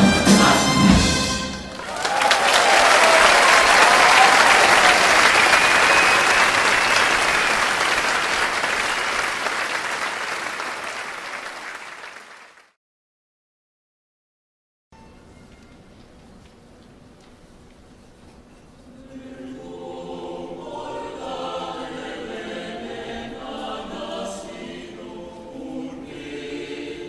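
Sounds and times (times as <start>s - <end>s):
audience applauding: 1.6s - 12.8s.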